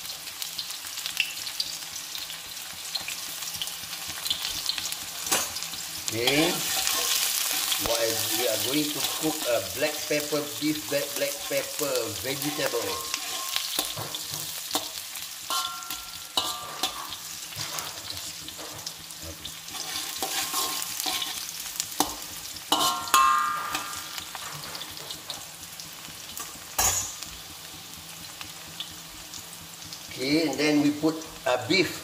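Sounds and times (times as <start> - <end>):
onion and garlic sizzling in oil: 0.0 - 32.0
metal spatula scraping a wok: 4.2 - 25.4
sharp ringing clanks: 15.5 - 17.2, 22.0 - 24.6, 26.4 - 27.3.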